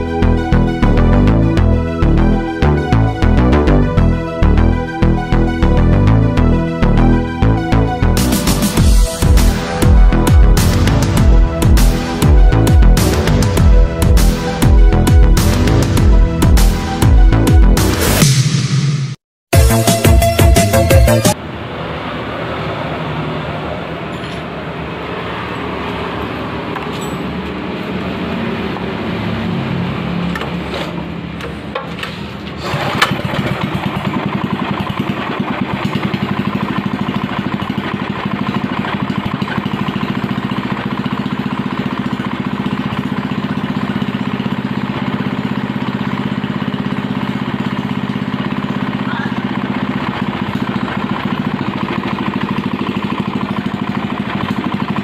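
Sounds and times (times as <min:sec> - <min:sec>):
small engine running: 0:00.0 - 0:18.2, 0:32.6 - 0:55.0.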